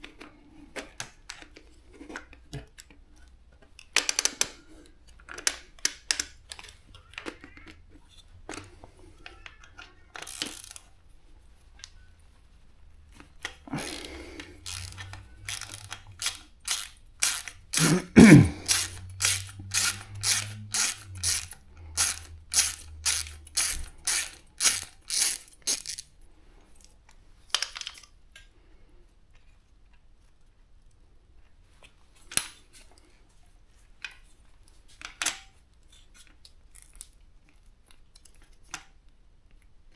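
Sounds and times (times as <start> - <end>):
hand tool metal clicks: 13.8 - 26.0.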